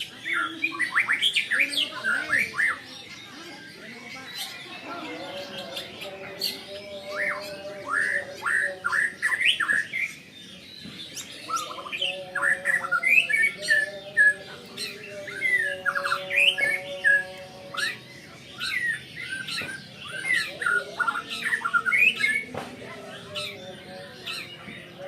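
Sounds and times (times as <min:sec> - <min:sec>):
bird singing whistled song: 0:00.0 - 0:03.2, 0:07.2 - 0:18.0, 0:18.6 - 0:23.6.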